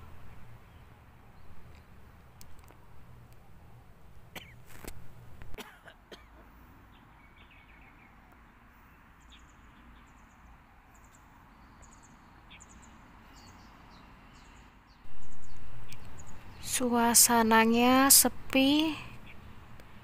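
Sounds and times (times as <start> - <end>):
small birds chirping: 6.8 - 20.0.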